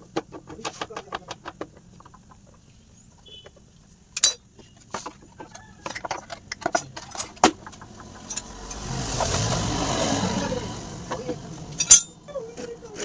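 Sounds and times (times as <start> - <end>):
engine sound: 6.5 - 13.0.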